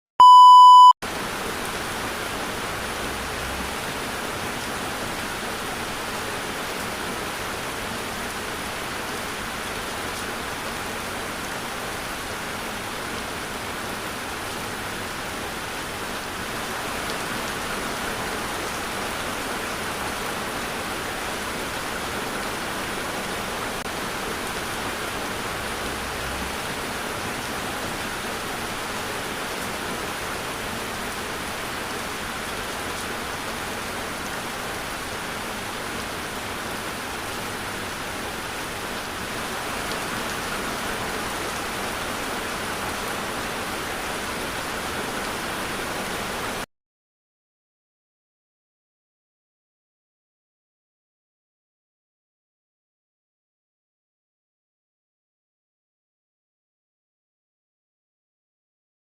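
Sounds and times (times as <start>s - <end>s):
loud electronic beep: 0.2s - 1.0s
steady rain hiss: 1.1s - 46.6s.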